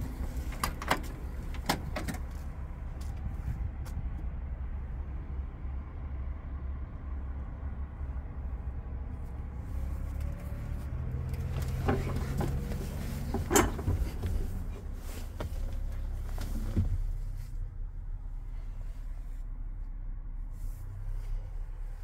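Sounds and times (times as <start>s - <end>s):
diesel truck engine idling: 0.0s - 20.4s
clunks and knocks: 0.3s - 2.4s, 11.4s - 17.2s.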